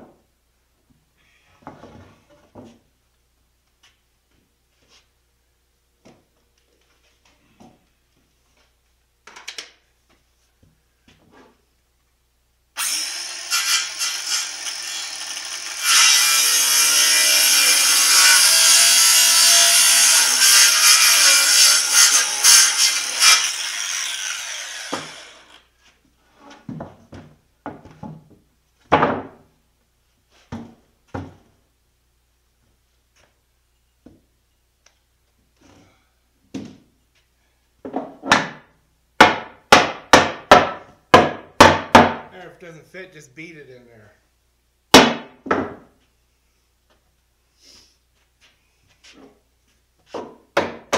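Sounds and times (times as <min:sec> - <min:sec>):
power tool running on wood: 0:12.8 - 0:21.2, 0:22.2 - 0:25.6.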